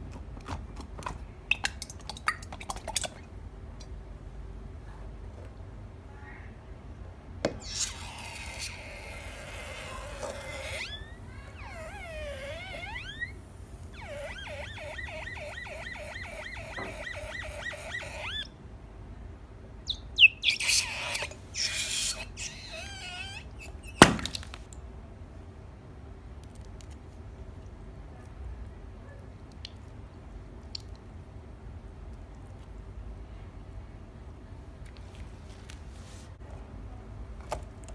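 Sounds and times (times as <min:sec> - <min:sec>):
balloon popping: 0:07.5 - 0:18.5, 0:20.5 - 0:24.6
rubber balloon squeaking: 0:07.5 - 0:18.5, 0:19.9 - 0:24.5.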